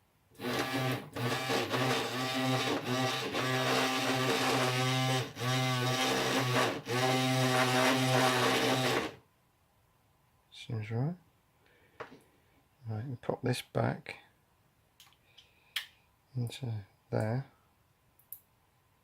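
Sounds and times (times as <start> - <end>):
electric shaver buzzing: 0.4 - 9.2.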